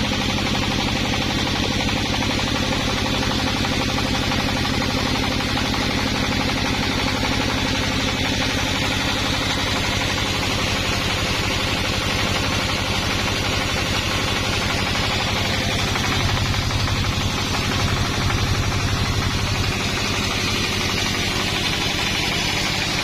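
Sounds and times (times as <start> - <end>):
sawmill engine running: 0.0 - 23.0.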